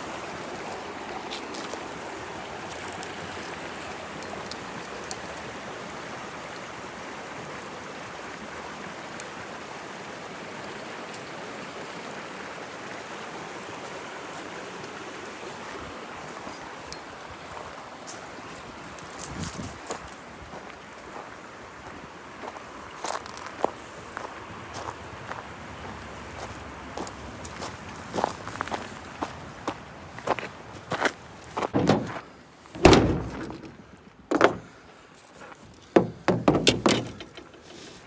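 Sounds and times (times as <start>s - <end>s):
stream rushing over rocks: 0.0s - 36.8s
small knock: 32.8s - 34.7s, 35.9s - 37.6s.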